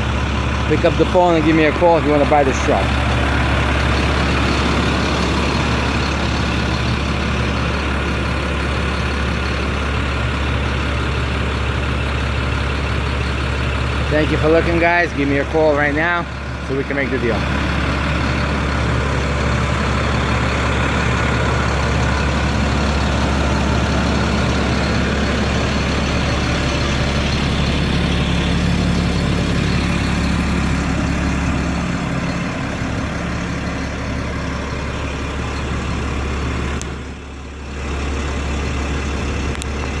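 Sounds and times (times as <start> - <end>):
diesel truck engine idling: 0.0 - 40.0.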